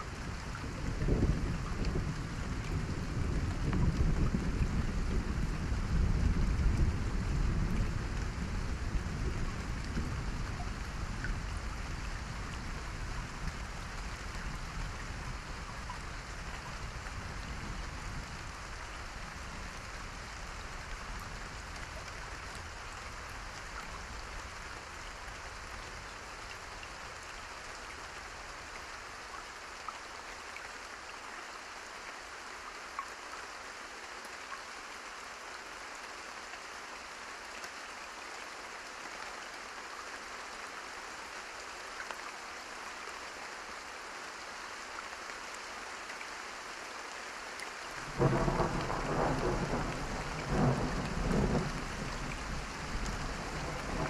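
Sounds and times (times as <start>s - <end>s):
steady rain: 0.0s - 54.0s
low rolling thunder: 48.0s - 54.0s.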